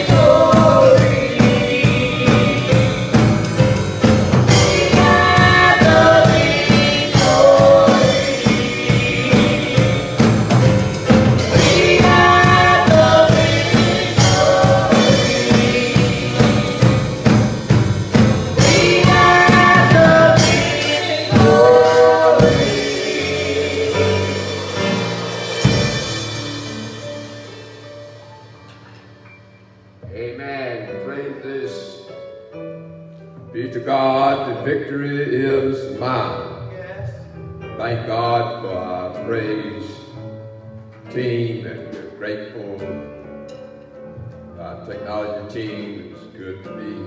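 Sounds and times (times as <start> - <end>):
gospel choir singing: 0.0 - 28.1
drum kit beat: 0.0 - 29.3
bass: 0.0 - 30.1, 35.8 - 47.0.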